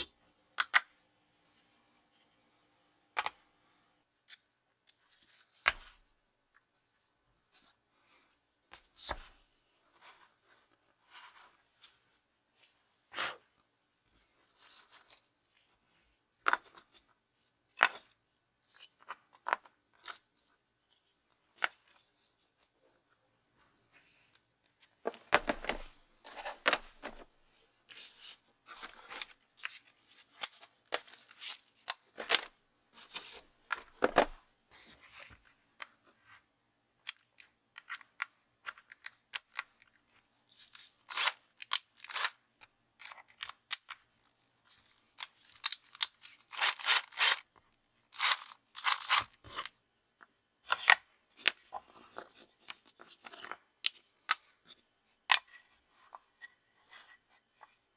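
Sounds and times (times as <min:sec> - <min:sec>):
hand tools scraping and clicking: 0:45.2 - 0:47.4, 0:48.2 - 0:49.4.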